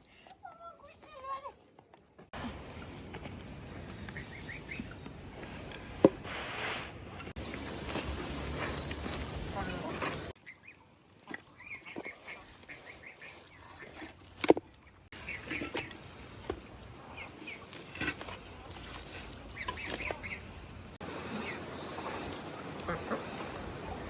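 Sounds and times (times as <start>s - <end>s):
fowl chirping: 19.5s - 20.5s.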